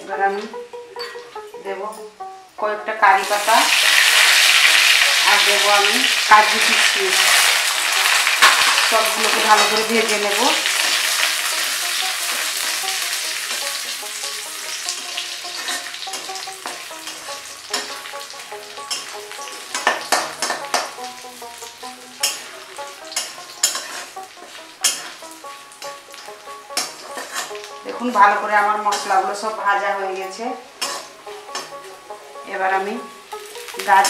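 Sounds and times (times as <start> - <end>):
spices sizzling in hot oil: 3.0 - 34.0
metal spatula scraping pan: 3.3 - 21.0, 21.6 - 29.4, 30.8 - 32.1.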